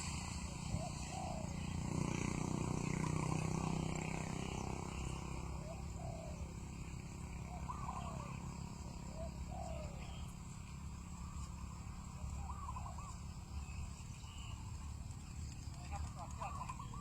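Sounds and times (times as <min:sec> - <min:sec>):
dove cooing: 0:00.5 - 0:10.5, 0:12.0 - 0:13.2, 0:15.8 - 0:17.0.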